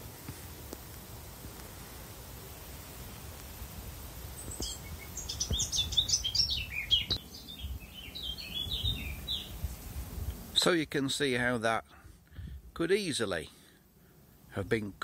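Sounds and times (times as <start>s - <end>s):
songbird singing: 4.2s - 9.9s.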